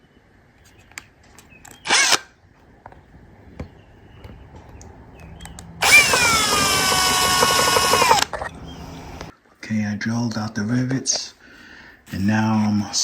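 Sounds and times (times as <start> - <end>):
power drill drilling: 1.9 - 2.2, 5.8 - 8.5.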